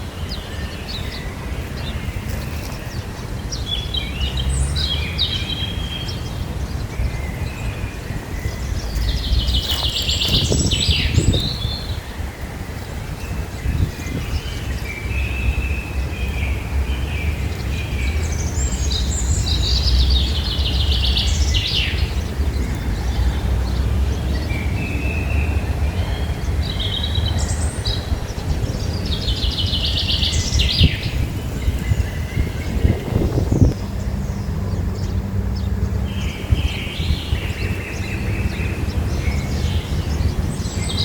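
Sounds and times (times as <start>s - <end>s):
songbird warbling and trilling: 0.2s - 16.3s.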